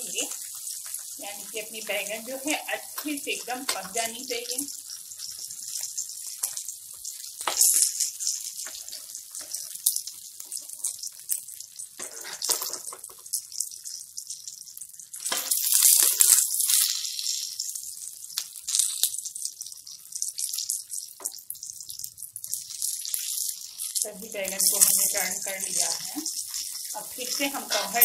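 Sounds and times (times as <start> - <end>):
vegetables sizzling in oil: 0.0 - 28.0
metal spatula scraping a pan: 7.4 - 9.9, 12.0 - 13.2, 23.4 - 28.0.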